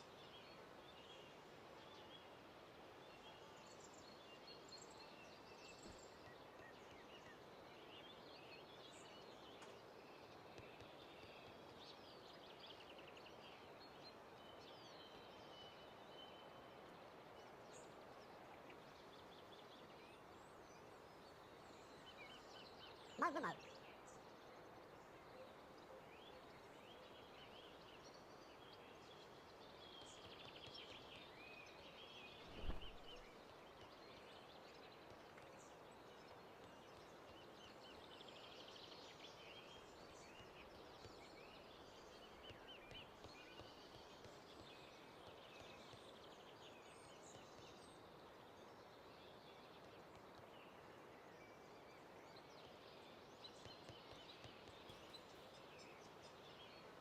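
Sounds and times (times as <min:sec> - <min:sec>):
faint bird calls and trills: 0:00.0 - 0:57.0
low thump: 0:32.5 - 0:33.2.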